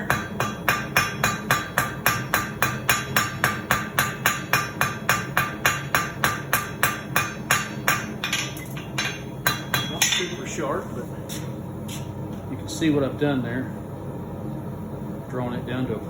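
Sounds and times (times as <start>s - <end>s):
hammer striking steel on anvil: 0.0s - 10.6s.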